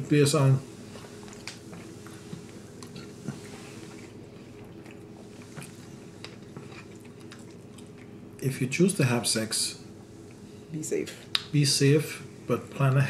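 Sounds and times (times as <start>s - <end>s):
steady low hum: 0.0s - 13.0s
chewing and mouth sounds: 0.8s - 8.4s.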